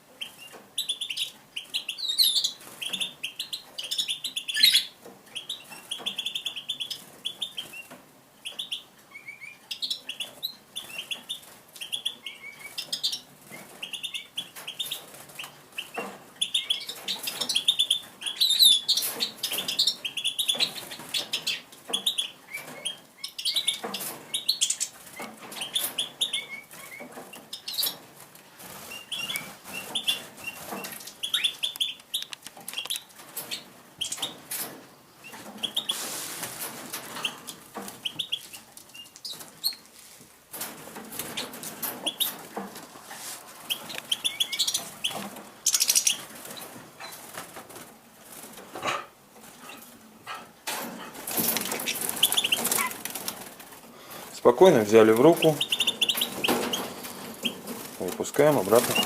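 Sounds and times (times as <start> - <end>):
birds chirping: 0.1 - 39.9, 40.9 - 59.0
wings fluttering: 23.8 - 48.8, 50.7 - 54.0, 54.7 - 59.0
rustles and clicks: 26.7 - 59.0.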